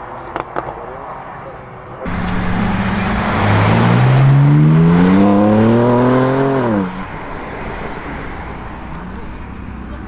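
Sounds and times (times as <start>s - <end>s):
flat-six car engine accelerating: 2.1s - 10.0s.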